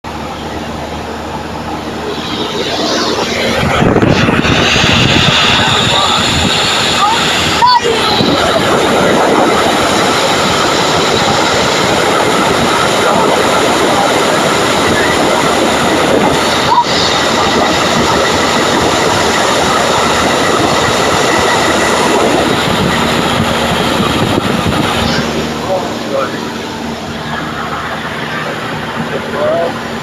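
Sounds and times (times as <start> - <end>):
light airplane engine drone: 0.0 - 30.0.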